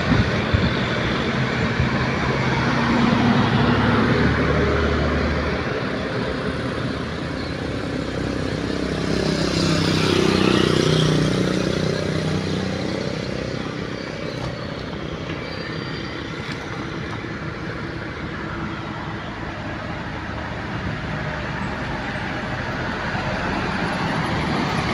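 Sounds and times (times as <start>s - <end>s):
traffic engine noise: 0.0s - 24.9s
vehicle engine passing by: 7.9s - 14.6s.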